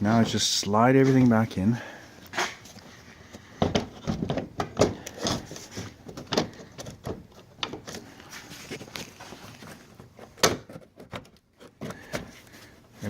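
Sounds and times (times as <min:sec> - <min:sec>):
plastic housing knocks and scrapes: 0:03.6 - 0:08.1.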